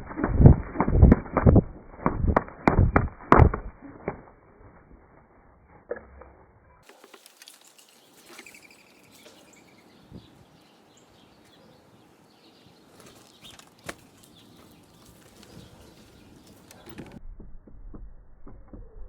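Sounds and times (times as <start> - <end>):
bird chirps: 6.6 - 17.2.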